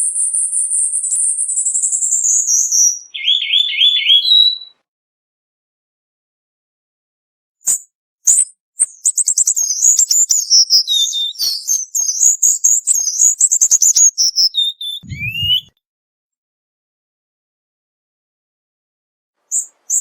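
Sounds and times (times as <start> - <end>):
bird singing: 0.7 - 4.8, 9.0 - 15.7
low thump: 15.0 - 15.7.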